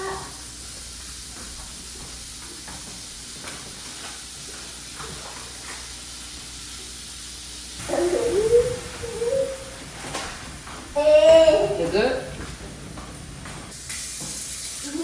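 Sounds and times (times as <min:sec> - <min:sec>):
food sizzling in a frying pan: 0:00.0 - 0:10.0, 0:13.7 - 0:15.0
person calling loudly: 0:07.8 - 0:09.8, 0:11.0 - 0:12.3.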